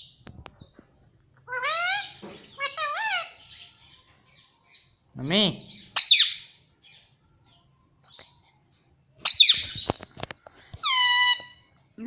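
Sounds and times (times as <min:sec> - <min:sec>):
parrot squawking: 0:01.5 - 0:03.6, 0:05.7 - 0:06.5, 0:10.8 - 0:11.7.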